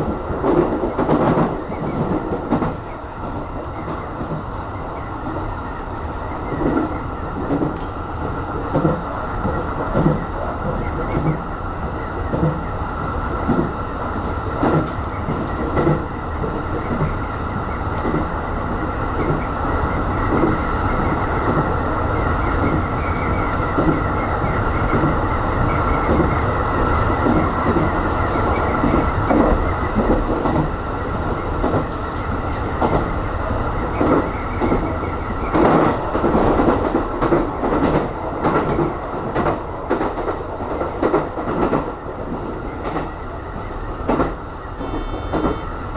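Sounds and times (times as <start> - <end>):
train rumbling: 0.0 - 45.9.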